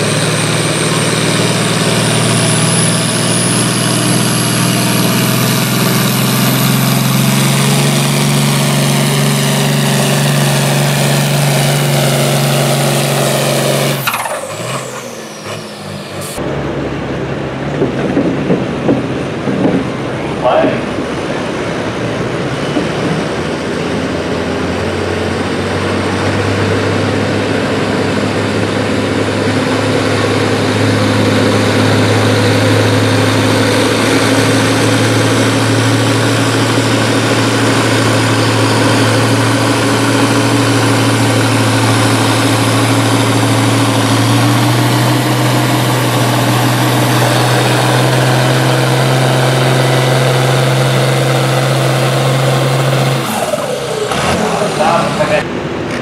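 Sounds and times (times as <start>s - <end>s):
pulling vehicle engine running: 0.0s - 56.0s.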